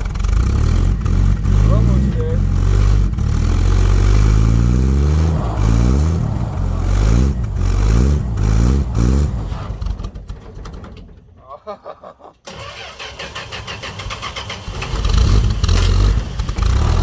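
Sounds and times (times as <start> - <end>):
pickup truck engine revving: 0.0 - 10.6, 12.5 - 17.0.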